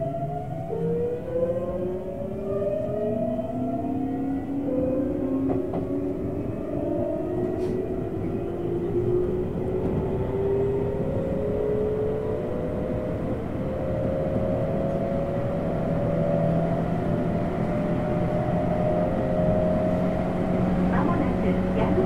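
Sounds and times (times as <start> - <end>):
train running rumble: 4.6 - 22.0.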